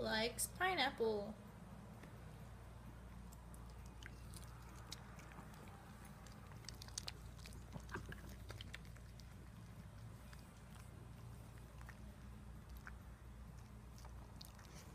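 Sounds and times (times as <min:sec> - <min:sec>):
faint low hum: 0:00.0 - 0:14.9
dog chewing with wet smacks: 0:03.2 - 0:14.9.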